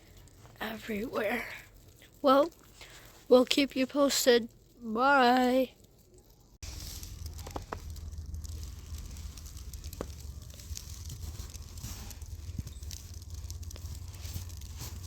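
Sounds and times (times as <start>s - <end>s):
light ticks and crackles: 0.0s - 15.0s
storm wind rumbling on microphone: 6.7s - 15.0s.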